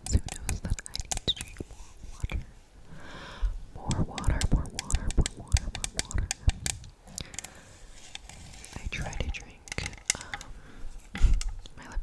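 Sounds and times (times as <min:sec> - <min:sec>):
quick sharp clicks and taps: 0:00.0 - 0:01.6, 0:03.9 - 0:07.6
soft whispered breaths: 0:00.1 - 0:12.0.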